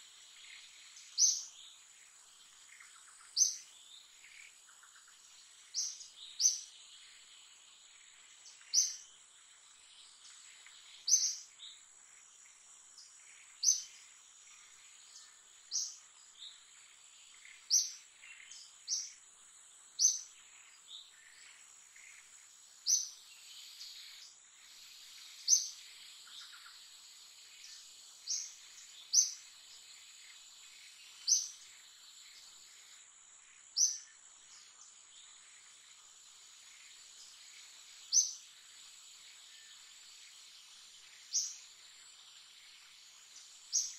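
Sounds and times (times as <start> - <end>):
insect drone: 0.0 - 43.9
bird chirps: 0.4 - 1.8, 2.4 - 7.2, 8.4 - 9.1, 10.0 - 11.8, 12.5 - 16.6, 20.0 - 32.9, 33.5 - 35.8, 36.6 - 38.5, 39.1 - 43.9.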